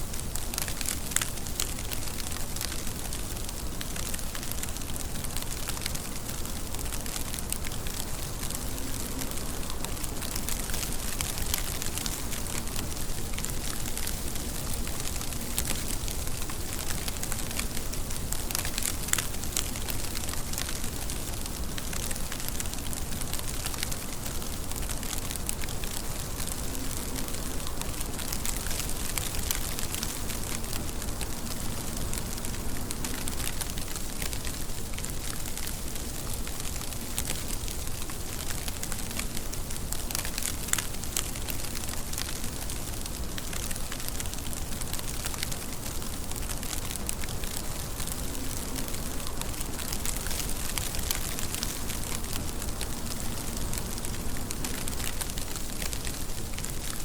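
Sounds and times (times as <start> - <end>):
rain falling: 0.0 - 57.0
raindrops pattering on surface: 0.0 - 57.0.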